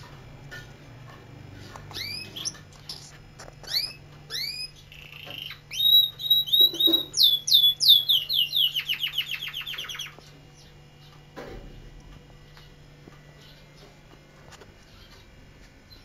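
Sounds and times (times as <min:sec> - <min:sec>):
canary singing: 0:01.6 - 0:11.2.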